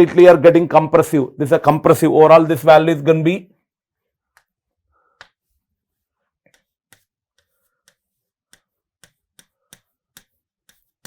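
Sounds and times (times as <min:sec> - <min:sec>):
stylus tapping on writing board: 0:06.5 - 0:11.0.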